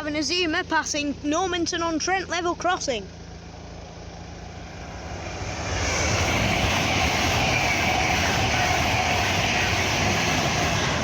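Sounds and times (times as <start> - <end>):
high-speed train passing: 3.1 - 11.0
rush of wheels and air: 4.1 - 11.0.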